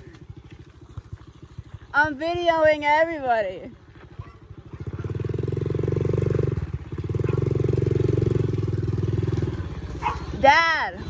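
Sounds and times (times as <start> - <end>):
dirt bike engine revving: 4.5 - 10.9.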